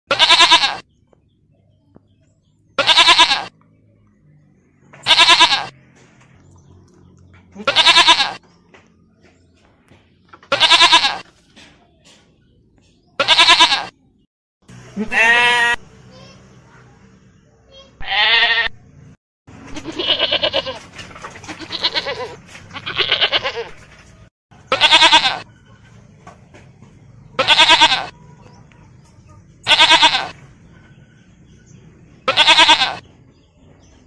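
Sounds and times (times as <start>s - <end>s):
lamb bleating: 0.1s - 0.8s, 2.8s - 3.5s, 5.0s - 5.7s, 7.6s - 8.4s, 10.5s - 11.2s, 13.2s - 14.0s, 15.0s - 15.8s, 18.0s - 18.8s, 19.7s - 20.8s, 21.5s - 23.8s, 24.7s - 25.4s, 27.4s - 28.1s, 29.7s - 30.4s, 32.3s - 33.0s.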